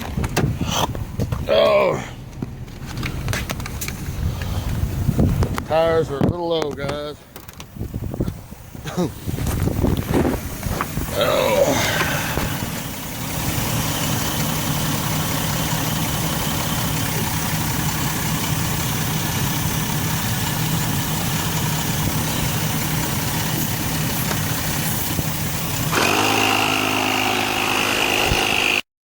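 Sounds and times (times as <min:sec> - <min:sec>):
motor humming: 0:09.2 - 0:28.8.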